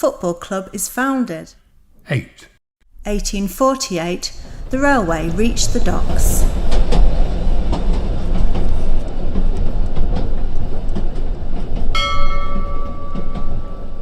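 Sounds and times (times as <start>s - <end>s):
train rumbling: 3.0s - 14.0s
wheels clicking on rail joints: 4.3s - 14.0s
bell ringing: 12.0s - 14.0s.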